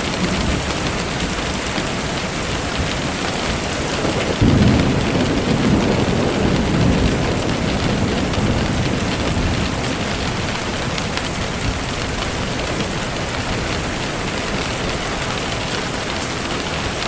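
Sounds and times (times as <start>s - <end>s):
steady rain falling: 0.0s - 17.0s
low rumble of thunder: 2.5s - 14.9s.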